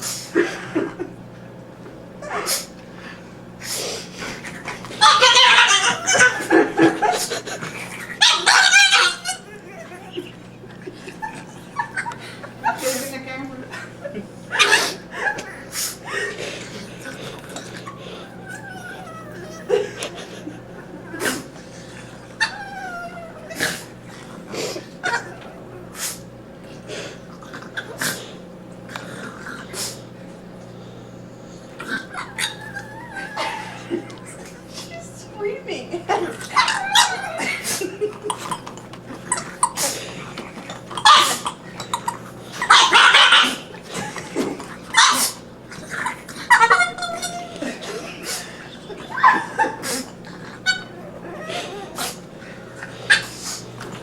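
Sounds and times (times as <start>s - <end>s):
dog breathing in bursts: 2.4s - 4.6s, 9.4s - 27.4s, 28.0s - 35.0s, 39.2s - 40.4s, 47.8s - 48.8s, 51.5s - 53.8s
animal drawn-out falling calls: 17.0s - 24.0s.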